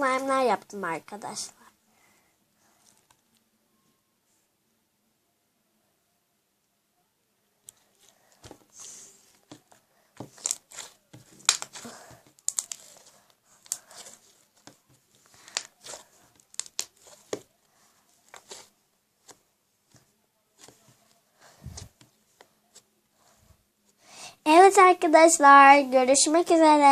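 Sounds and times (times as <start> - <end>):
crinkling and rustling handling noise: 2.6 - 4.4, 7.6 - 24.0.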